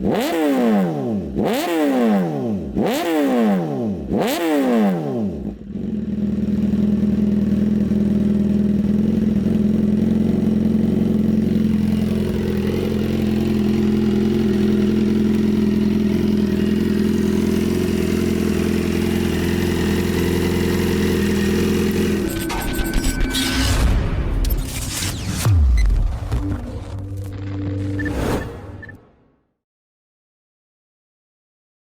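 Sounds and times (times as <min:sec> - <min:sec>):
motorcycle engine idling: 0:05.4 - 0:22.2.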